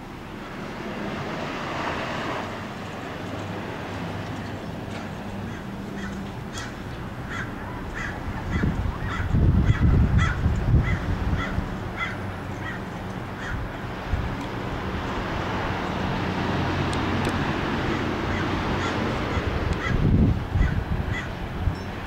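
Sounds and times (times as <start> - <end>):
bird calling: 5.4 - 13.6, 17.9 - 20.0.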